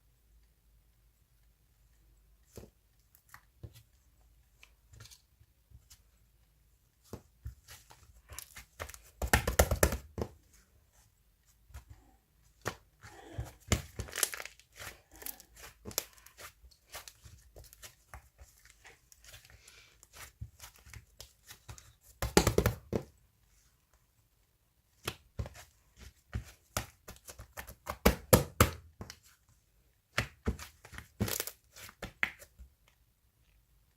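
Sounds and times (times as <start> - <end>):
tearing and crinkling: 13.7 - 19.4.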